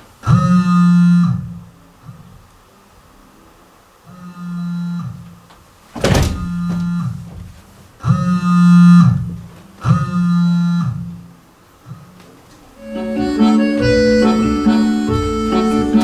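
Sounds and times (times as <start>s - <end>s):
instrument playing long notes: 12.8s - 16.0s.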